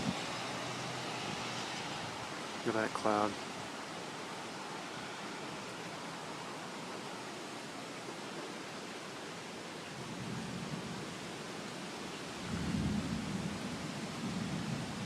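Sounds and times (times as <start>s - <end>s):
wind: 0.0s - 15.0s
low thunder rumble: 12.4s - 15.0s.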